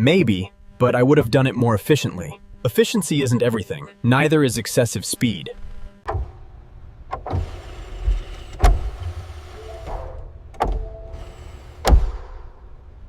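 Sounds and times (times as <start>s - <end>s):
sharp clunks: 6.1s - 9.0s, 9.8s - 12.6s.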